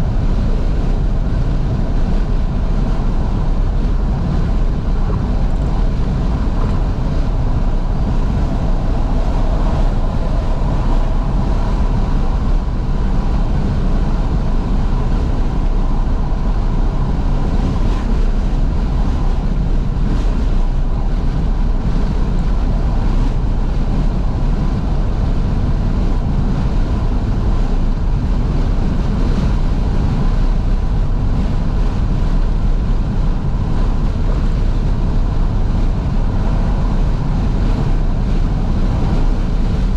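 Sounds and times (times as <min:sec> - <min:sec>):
car engine and tyres running: 0:00.0 - 0:39.9
wind rushing over microphone: 0:00.0 - 0:39.9.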